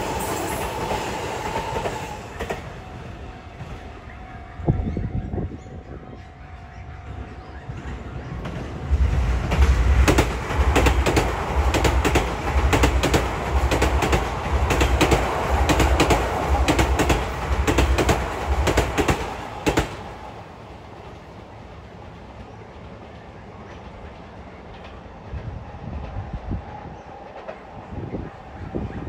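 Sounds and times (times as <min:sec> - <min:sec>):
train passing rumble: 0:00.0 - 0:29.0
wheels clacking over rail joints: 0:07.8 - 0:20.4.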